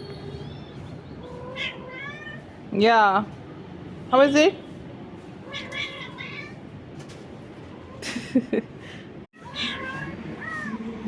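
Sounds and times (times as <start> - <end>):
cat meowing: 1.4 - 2.4, 5.4 - 6.6, 9.4 - 11.0.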